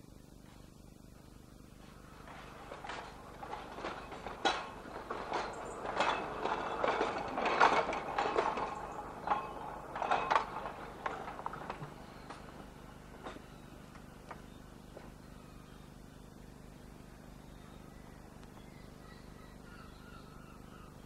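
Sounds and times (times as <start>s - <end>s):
electric tram in motion: 1.0s - 21.0s
mechanical clicks and clatter: 2.3s - 13.4s.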